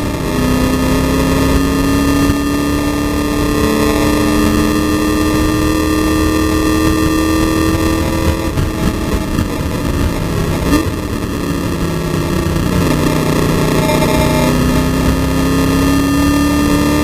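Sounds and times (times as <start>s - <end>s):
race car engine under full load: 0.0s - 17.0s
road and wind noise: 0.0s - 17.0s.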